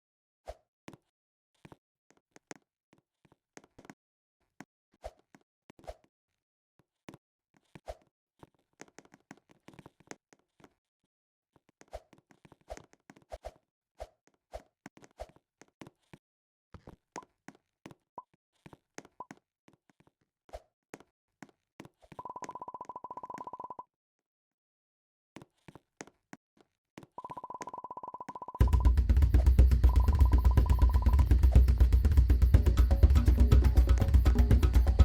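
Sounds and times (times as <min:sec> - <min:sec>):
buzzing beep: 0:29.8 - 0:31.3.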